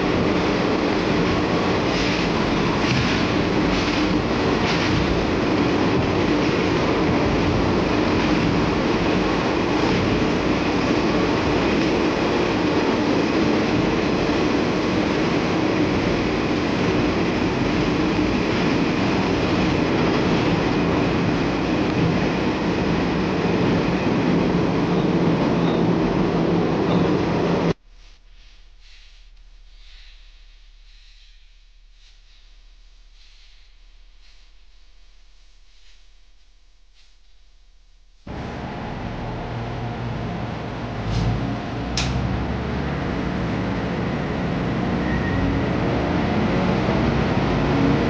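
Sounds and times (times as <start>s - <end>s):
railcar rumbling along track: 0.0s - 27.8s, 38.3s - 48.0s
brief bright hiss: 28.0s - 32.4s.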